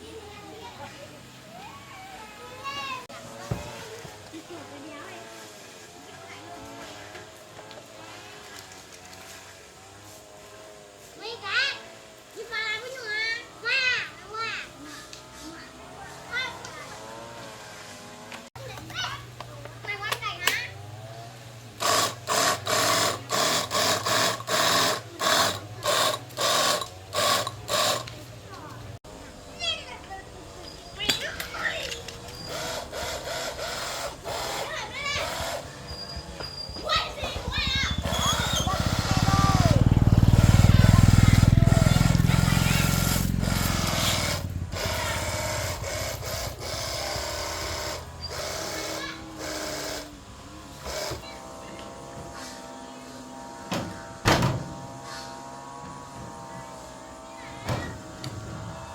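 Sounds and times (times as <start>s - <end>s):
small electric motor running: 3.2s - 18.5s, 19.3s - 58.9s
hand tool scraping a hard surface: 21.8s - 28.2s, 31.9s - 39.2s.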